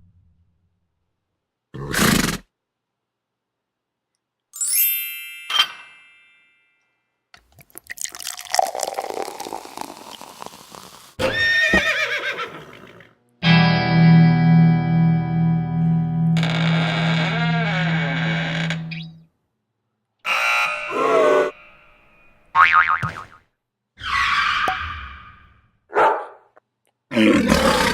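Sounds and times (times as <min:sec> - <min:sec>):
horse-like whinny: 0:01.8 - 0:02.5, 0:11.2 - 0:13.2, 0:27.1 - 0:27.9
bell-like dings: 0:04.6 - 0:07.0
crackling fizz: 0:07.5 - 0:11.2
pulsing buzzer: 0:20.3 - 0:22.1.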